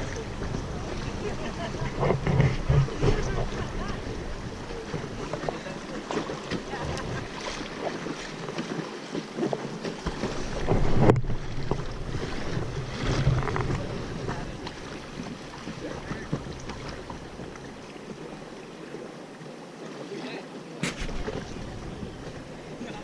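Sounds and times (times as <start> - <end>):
river water rushing and splashing: 0.0 - 23.0
wind buffeting microphone: 10.0 - 17.8, 20.8 - 23.0.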